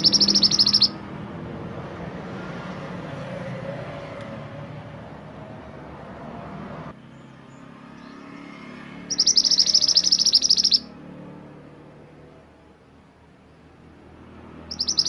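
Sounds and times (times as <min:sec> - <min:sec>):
songbird trilling: 0:00.0 - 0:01.0, 0:09.1 - 0:10.9, 0:14.7 - 0:15.0.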